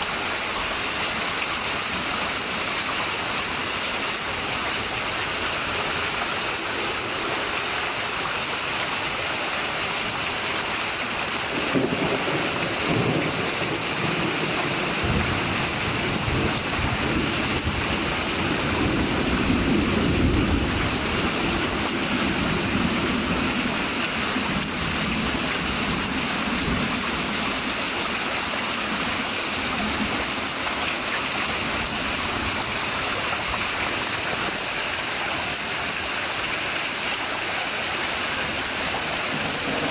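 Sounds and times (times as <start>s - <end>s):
heavy rain pouring: 0.0s - 39.9s
thunder rolling: 11.5s - 23.4s.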